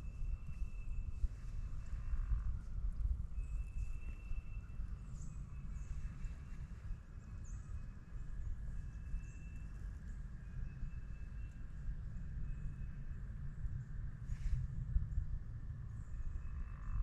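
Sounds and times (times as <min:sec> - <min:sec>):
wind rumble on microphone: 0:00.0 - 0:17.0
faint bird chirps: 0:03.3 - 0:13.2.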